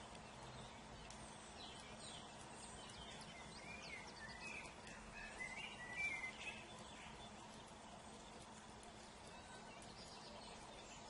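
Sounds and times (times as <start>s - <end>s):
faint steady hiss: 0.0s - 11.0s
small birds chirping: 0.0s - 11.0s.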